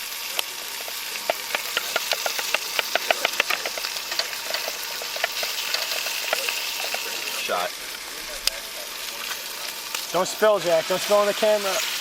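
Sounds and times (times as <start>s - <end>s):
bacon sizzling and popping: 0.0s - 12.0s.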